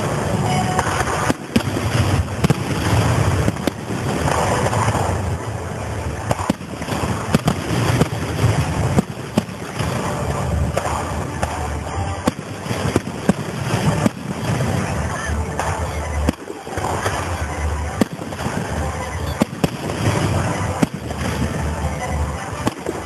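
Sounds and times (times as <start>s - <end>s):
fireworks bangs: 0.0s - 23.0s
low rumble: 0.0s - 23.0s.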